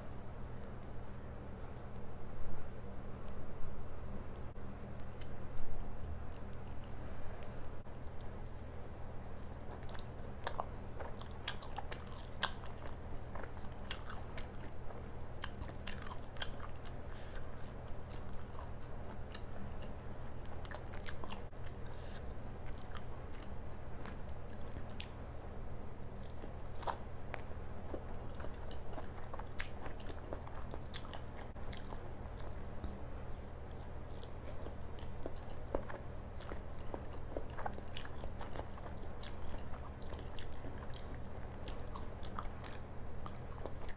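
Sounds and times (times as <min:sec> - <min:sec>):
low hum: 0:00.0 - 0:43.9
chewing and biting food: 0:09.4 - 0:43.9.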